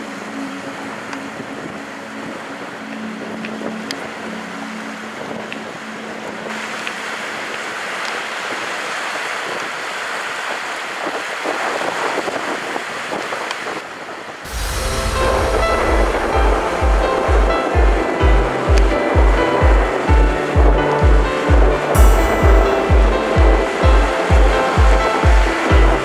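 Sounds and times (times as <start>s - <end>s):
strong wind rushing: 10.4s - 26.0s
low steady hum: 14.5s - 26.0s.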